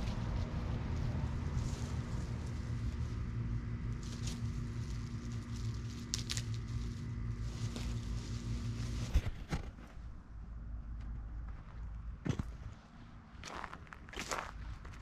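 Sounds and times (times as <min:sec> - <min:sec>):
crackling rustles: 0:00.0 - 0:10.2
low hum: 0:00.0 - 0:15.0.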